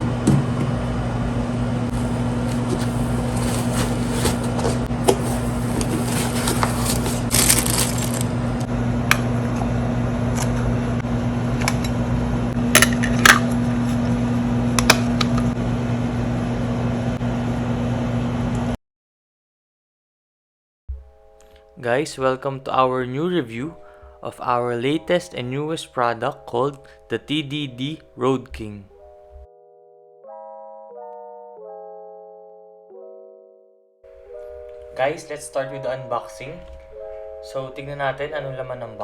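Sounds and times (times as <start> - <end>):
low electrical hum: 0.0 - 18.8
rustling: 1.9 - 8.4.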